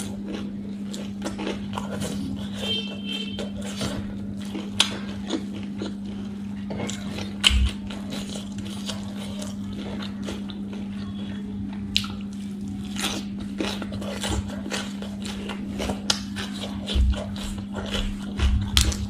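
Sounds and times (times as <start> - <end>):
chewing crisp salad greens: 0.0 - 19.0
steady low hum: 0.0 - 19.0.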